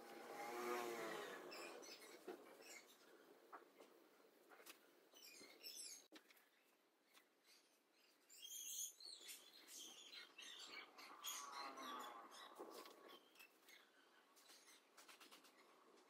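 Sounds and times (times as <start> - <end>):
faint high bird chirps: 5.1 - 15.7.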